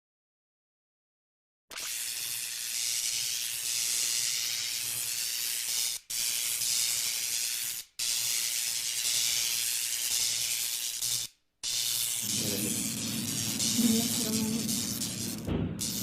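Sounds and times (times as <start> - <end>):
loud hissing rush: 12.2 - 16.0.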